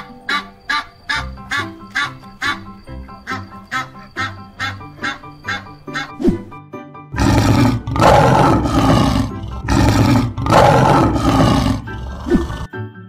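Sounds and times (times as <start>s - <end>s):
lion roaring: 7.2s - 12.7s.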